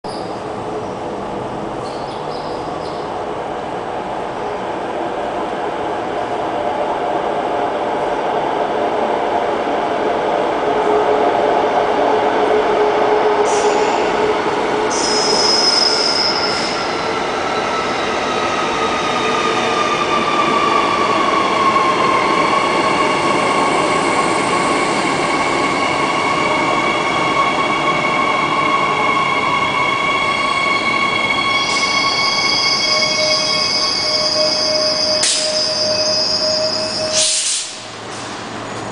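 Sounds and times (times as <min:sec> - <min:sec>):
train brake squeal: 0:14.9 - 0:17.0, 0:30.3 - 0:38.8.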